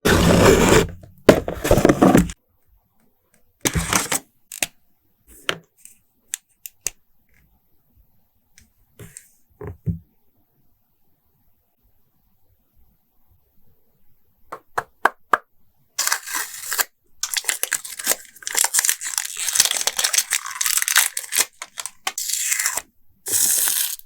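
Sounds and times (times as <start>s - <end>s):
packaging crinkling: 16.0s - 24.0s.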